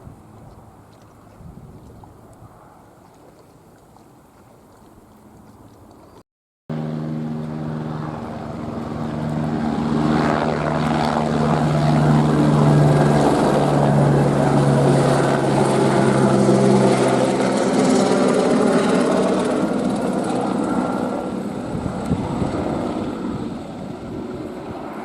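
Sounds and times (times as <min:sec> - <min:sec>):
helicopter flying: 0:06.7 - 0:25.0.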